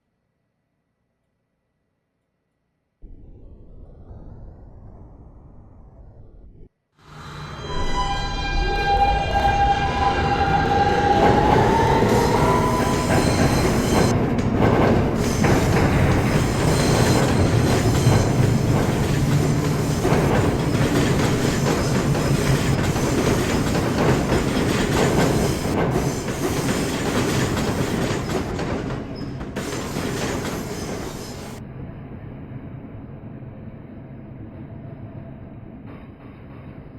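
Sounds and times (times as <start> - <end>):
sustained high tone: 7.1 - 14.1
subway train wheels clacking: 8.4 - 31.6, 34.4 - 36.9.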